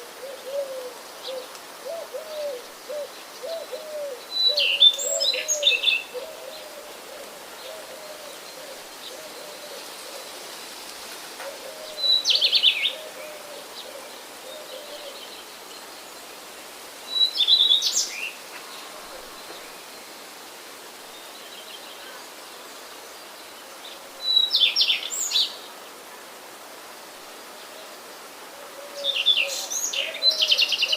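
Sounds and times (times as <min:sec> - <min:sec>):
low repeated cooing: 0:00.0 - 0:15.7, 0:18.4 - 0:19.9, 0:25.7 - 0:30.9
faint background hiss: 0:00.0 - 0:30.9
songbird singing: 0:00.0 - 0:30.9.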